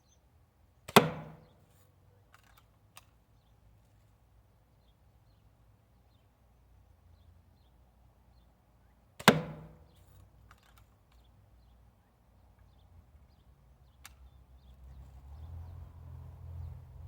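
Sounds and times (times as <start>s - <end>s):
bb gun shot: 0.9s - 1.5s, 9.2s - 9.8s.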